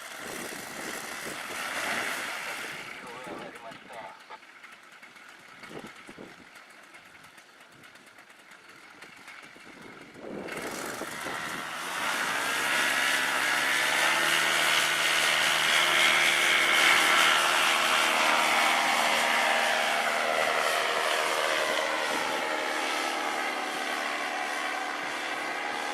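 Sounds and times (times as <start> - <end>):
small two-stroke engine and propeller: 0.0 - 25.9
wind noise: 9.4 - 13.0.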